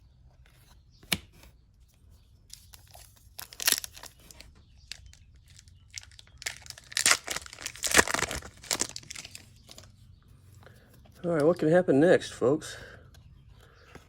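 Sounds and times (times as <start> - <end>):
plastic wrapper crinkling and tearing: 2.5 - 9.9.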